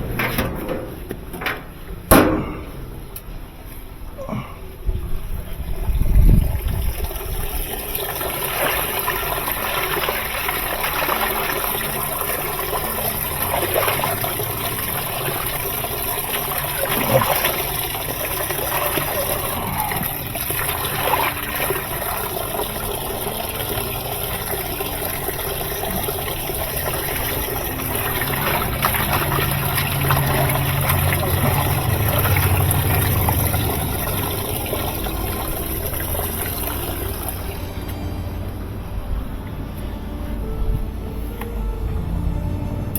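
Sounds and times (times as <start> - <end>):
low hum: 0.0 - 42.9
water running and trickling: 5.3 - 38.5.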